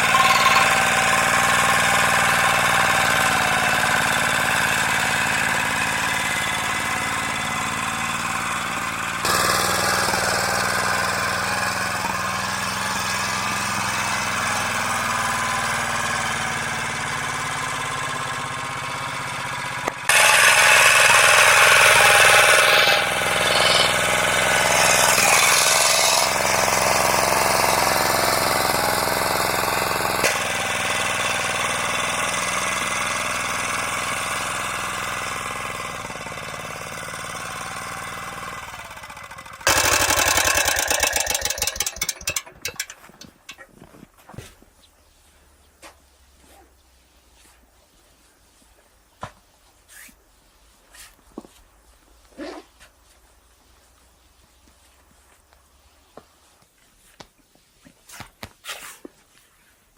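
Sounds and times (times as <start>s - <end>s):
engine running with knocking beat: 0.0s - 13.3s, 23.1s - 43.6s.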